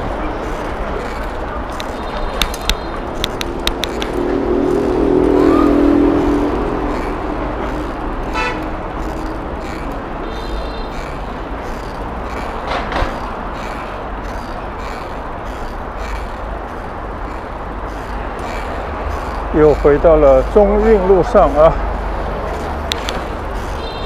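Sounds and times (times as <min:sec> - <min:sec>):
street traffic noise: 0:00.0 - 0:24.0
vehicle horn: 0:08.2 - 0:08.7, 0:10.2 - 0:11.0, 0:23.8 - 0:24.0.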